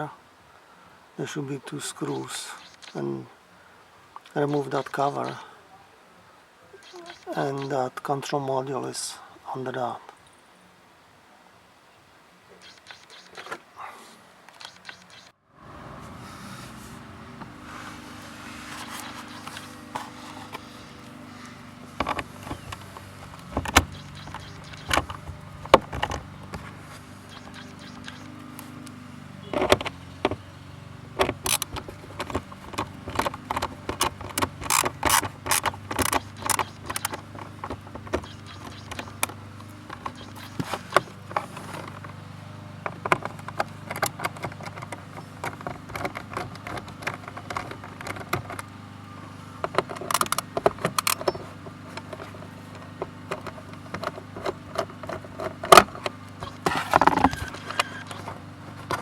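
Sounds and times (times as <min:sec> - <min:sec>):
hand tools clicking and tapping: 0:17.3 - 0:59.0.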